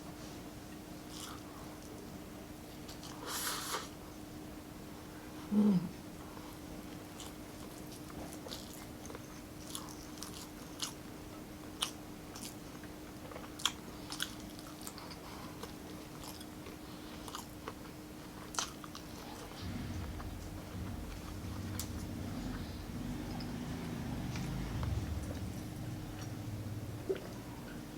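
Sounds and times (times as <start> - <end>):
faint steady hum: 0.0 - 27.9
chewing and biting food: 7.0 - 22.3
low rumble: 19.3 - 27.9.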